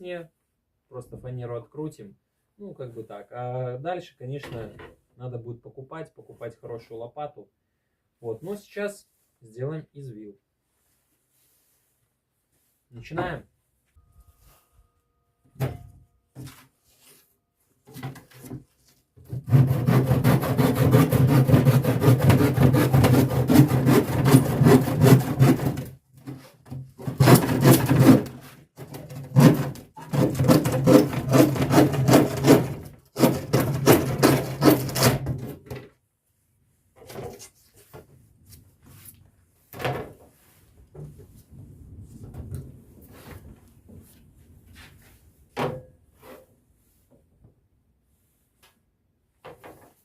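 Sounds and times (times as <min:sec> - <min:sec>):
saw cutting plywood: 0:19.2 - 0:26.4, 0:27.0 - 0:35.5.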